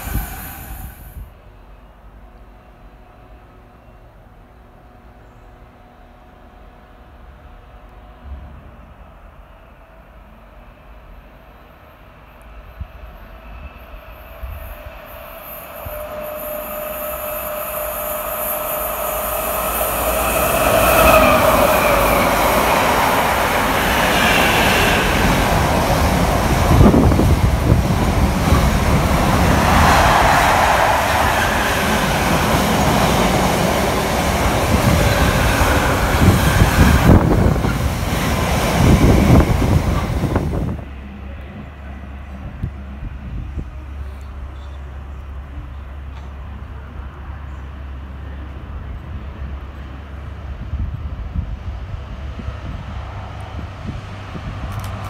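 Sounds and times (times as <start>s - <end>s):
freight train whine: 0.0s - 55.0s
train wagons rumbling and clattering: 12.5s - 55.0s.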